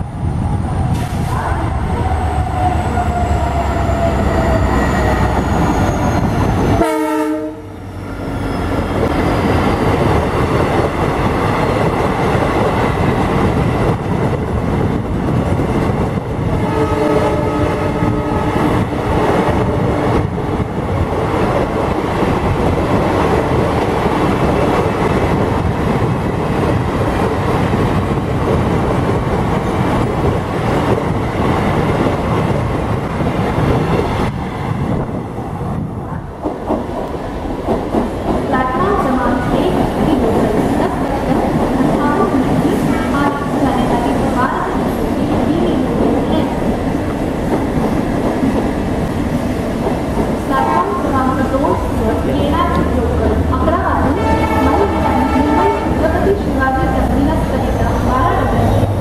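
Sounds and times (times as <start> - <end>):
train rumbling: 0.0 - 59.0
train horn: 6.8 - 7.8, 16.6 - 20.1, 54.0 - 56.2.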